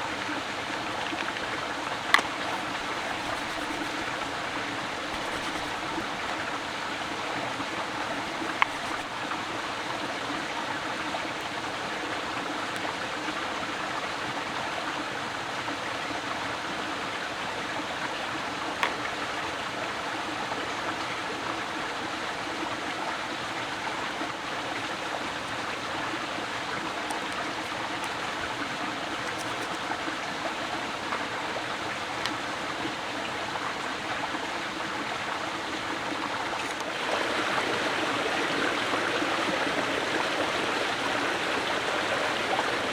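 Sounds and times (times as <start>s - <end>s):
running water rushing: 0.0s - 14.6s, 23.2s - 42.9s.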